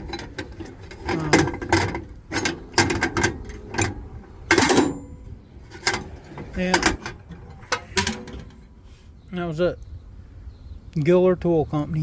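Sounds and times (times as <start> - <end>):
metal hand tools clattering: 0.0 - 8.7.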